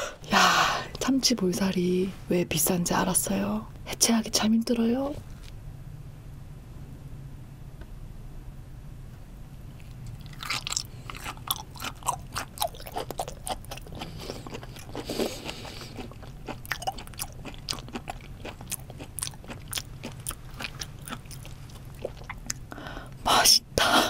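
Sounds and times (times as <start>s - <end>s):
chewing mouth clicks and smacks: 9.8s - 22.7s.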